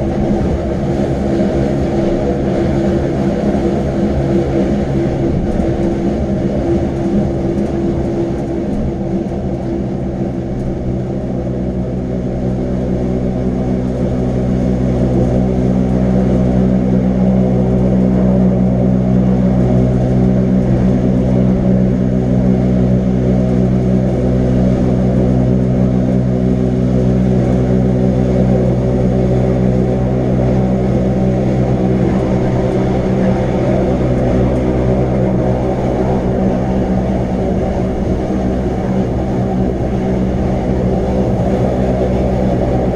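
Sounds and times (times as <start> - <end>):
electric train motors humming: 25.6 - 42.9.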